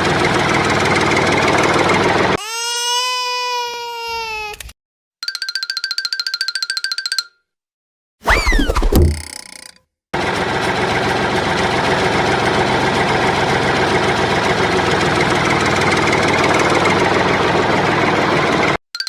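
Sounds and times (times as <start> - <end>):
tractor engine idling: 0.0 - 2.4, 10.2 - 18.8.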